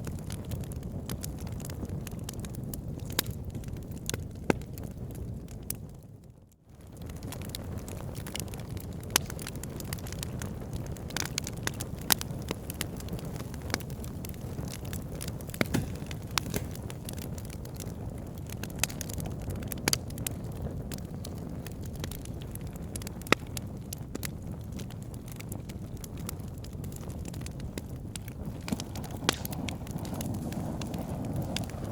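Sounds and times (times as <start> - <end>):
wood fire crackling: 0.0 - 31.9.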